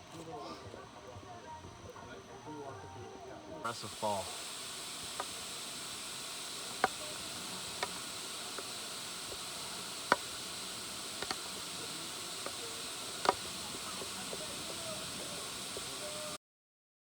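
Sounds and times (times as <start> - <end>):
waterfall rushing: 3.7 - 16.4.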